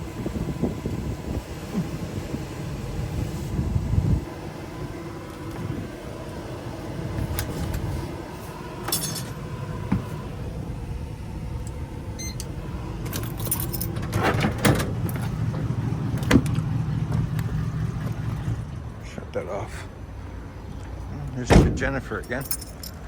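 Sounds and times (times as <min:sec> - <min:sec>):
low vehicle rumble: 0:00.0 - 0:23.0
keys jangling: 0:08.9 - 0:09.4, 0:12.2 - 0:15.3, 0:22.2 - 0:23.0.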